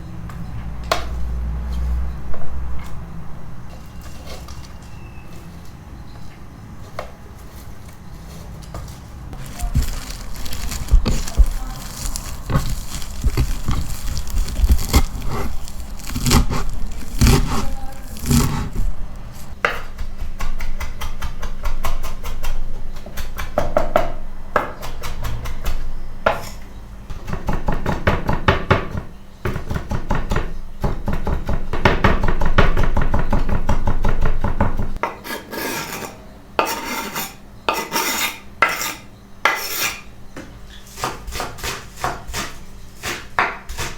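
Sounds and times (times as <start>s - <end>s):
knife chopping on wooden board: 9.4s - 22.0s.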